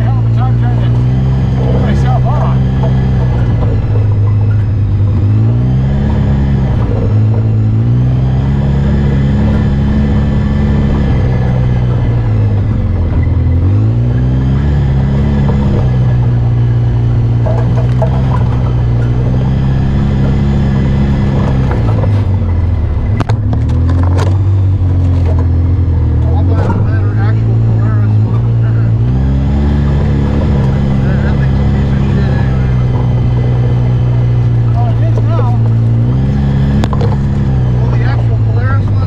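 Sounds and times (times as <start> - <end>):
off-road vehicle engine revving: 0.0 - 39.0
sharp knocks: 2.3 - 9.8, 15.2 - 25.6.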